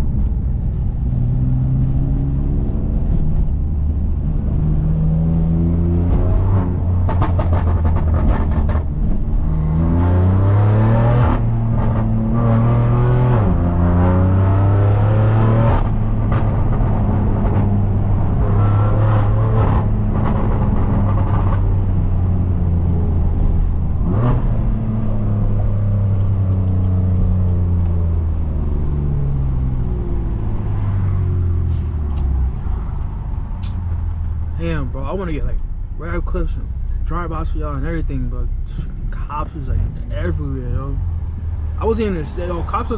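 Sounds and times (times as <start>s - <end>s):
car engine revving through gears: 4.3s - 32.3s.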